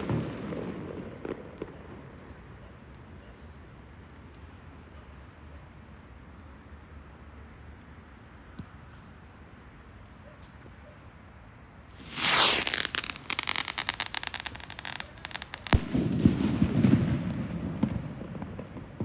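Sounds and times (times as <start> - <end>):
firework hiss: 11.9 - 16.6
fireworks crackling: 11.9 - 19.0
firework bang: 12.0 - 18.8.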